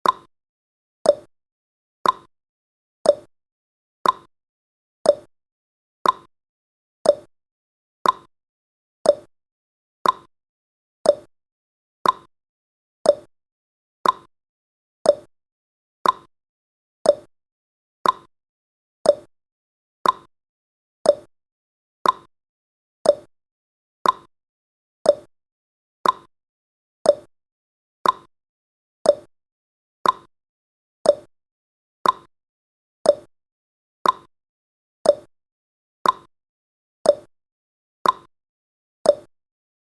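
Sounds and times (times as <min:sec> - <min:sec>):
clock ticking: 0:02.0 - 0:02.3, 0:04.0 - 0:04.3, 0:06.0 - 0:06.3, 0:08.0 - 0:08.3, 0:10.0 - 0:10.3, 0:12.0 - 0:12.3, 0:14.0 - 0:14.3, 0:16.0 - 0:16.3, 0:18.0 - 0:18.3, 0:20.0 - 0:20.3, 0:22.0 - 0:22.3, 0:23.1 - 0:23.3, 0:24.0 - 0:24.3, 0:26.0 - 0:26.3, 0:28.0 - 0:28.3, 0:29.1 - 0:29.3, 0:30.0 - 0:30.3, 0:31.1 - 0:31.3, 0:32.0 - 0:32.3, 0:33.1 - 0:33.3, 0:34.0 - 0:34.3, 0:35.1 - 0:35.3, 0:36.0 - 0:36.3, 0:38.0 - 0:38.3, 0:39.1 - 0:39.3.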